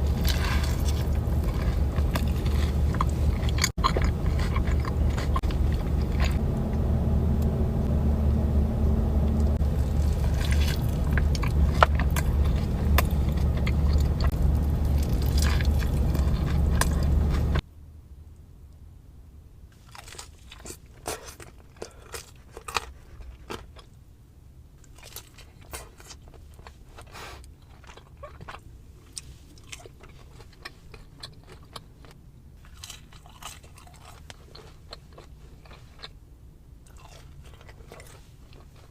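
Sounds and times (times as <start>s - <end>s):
crunchy bites and wet chewing: 0.0s - 6.4s, 9.6s - 17.6s, 19.8s - 23.9s, 24.8s - 36.2s, 36.8s - 38.9s
loud low rumble: 0.0s - 17.6s.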